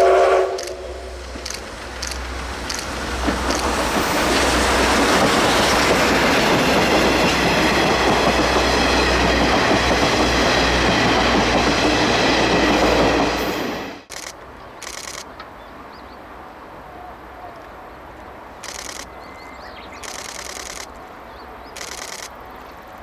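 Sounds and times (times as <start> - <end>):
train wheels rumbling on rails: 0.0 - 15.3.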